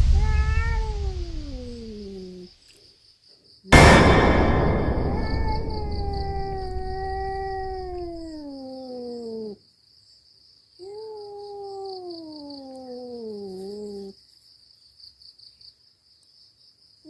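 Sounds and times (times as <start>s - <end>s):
insects chirring: 6.0s - 17.0s.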